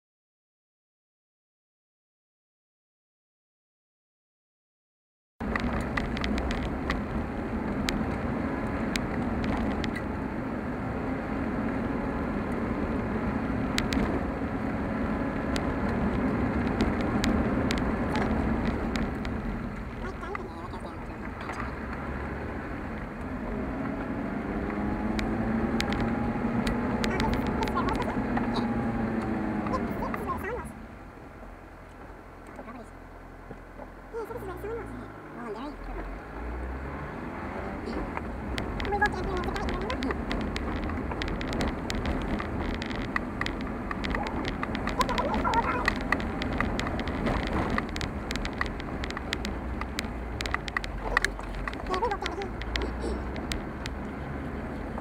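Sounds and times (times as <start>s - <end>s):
sharp clicks and rattles: 5.4s - 10.2s, 13.5s - 14.4s, 15.3s - 22.1s, 24.6s - 30.8s, 37.8s - 55.0s
car engine rumble: 5.4s - 55.0s.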